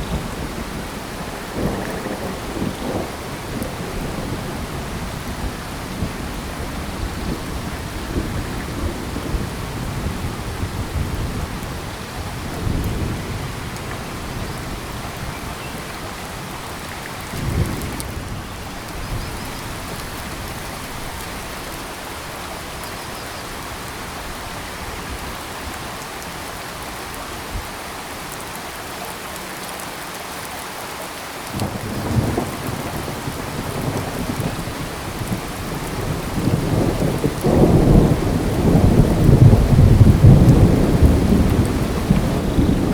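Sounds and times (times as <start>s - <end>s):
thunder rumbles: 0.0s - 21.4s, 31.5s - 42.9s
steady rain: 0.0s - 42.9s.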